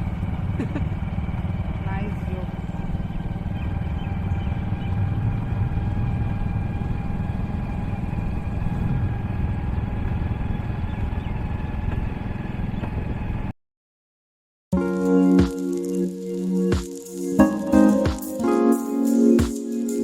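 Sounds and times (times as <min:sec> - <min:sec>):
motorcycle engine idling: 0:00.0 - 0:13.4.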